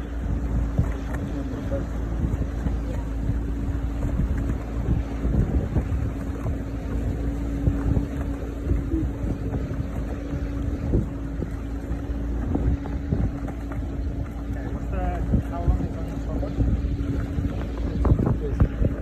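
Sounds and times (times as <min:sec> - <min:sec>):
motorboat engine running: 0:00.0 - 0:19.0
wind buffeting microphone: 0:00.0 - 0:19.0.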